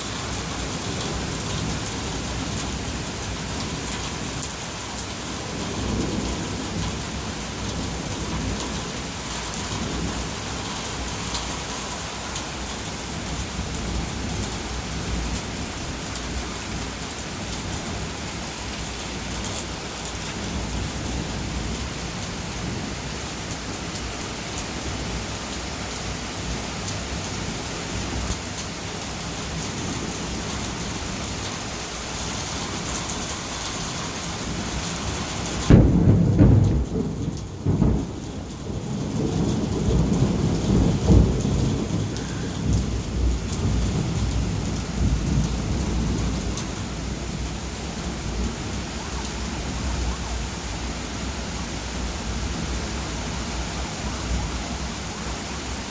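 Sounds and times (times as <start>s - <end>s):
heavy rain falling: 0.0s - 55.9s
thunder rumbling: 32.8s - 52.8s.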